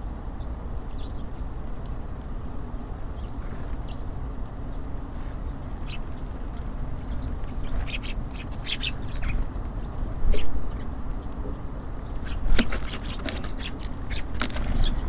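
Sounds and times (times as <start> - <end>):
low background rumble: 0.0 - 15.0
small songbirds chirping: 0.1 - 15.0.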